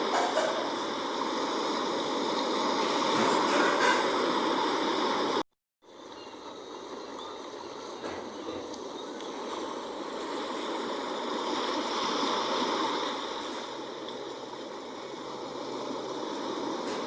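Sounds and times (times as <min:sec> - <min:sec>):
sea waves washing: 0:00.0 - 0:17.0.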